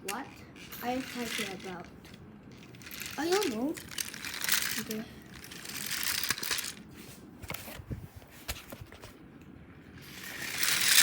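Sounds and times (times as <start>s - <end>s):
toy trains clicking: 0.0s - 6.8s, 10.0s - 11.0s.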